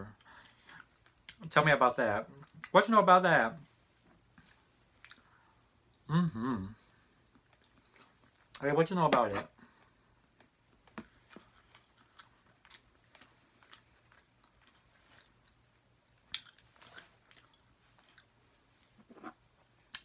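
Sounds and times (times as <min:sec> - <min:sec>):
chewing and mouth clicks: 0:04.4 - 0:06.0, 0:07.2 - 0:08.6, 0:10.4 - 0:20.0.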